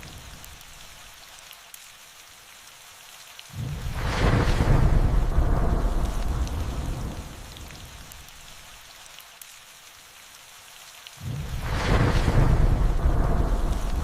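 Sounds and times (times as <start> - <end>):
raindrops ticking: 0.0 - 14.0
steady rain: 0.0 - 14.0
thunder rumbling: 3.6 - 8.2, 11.2 - 14.0.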